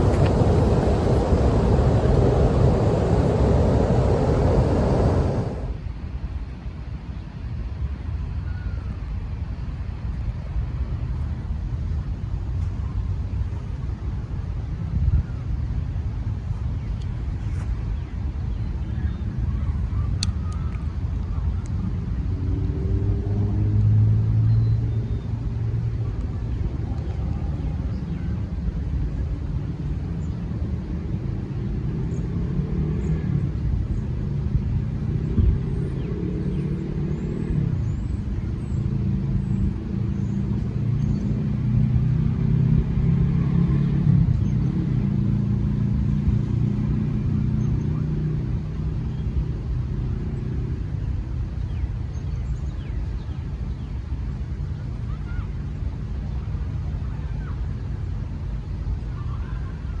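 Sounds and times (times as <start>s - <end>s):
vehicle engine humming: 0.0s - 5.8s
low rumble: 0.0s - 6.0s.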